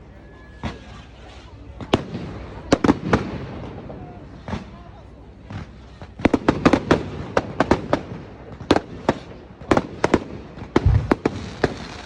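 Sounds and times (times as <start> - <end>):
fireworks cracks and bangs: 0.6 - 12.0
deep firework boom: 5.5 - 12.0.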